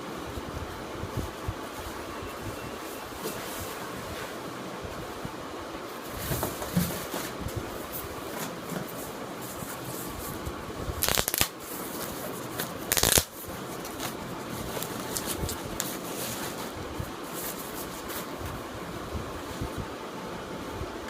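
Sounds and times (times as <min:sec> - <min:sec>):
background hiss: 0:00.0 - 0:21.0
packaging rustling: 0:11.0 - 0:18.4.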